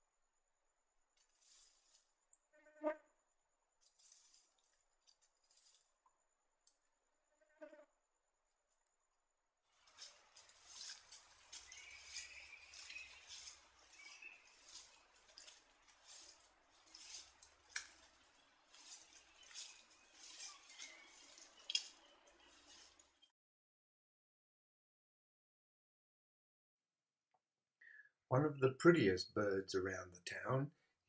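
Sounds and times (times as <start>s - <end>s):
bird scratching through dry leaves: 1.2s - 2.1s, 3.8s - 6.0s, 9.7s - 23.3s.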